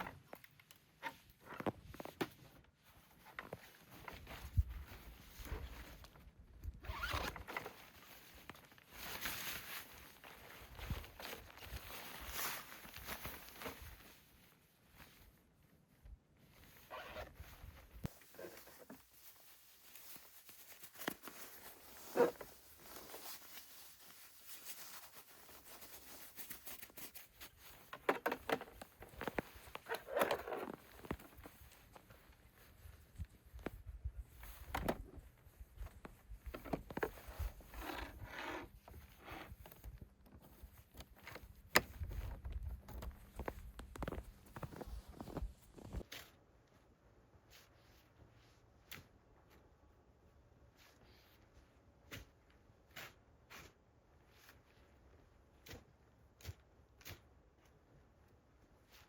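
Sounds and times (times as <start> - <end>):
rustling of handled objects: 0.0 - 46.1.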